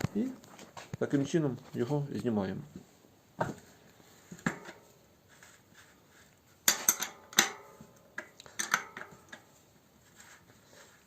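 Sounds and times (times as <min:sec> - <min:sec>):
spanners clinking on metal: 0:06.7 - 0:07.7, 0:08.5 - 0:09.3.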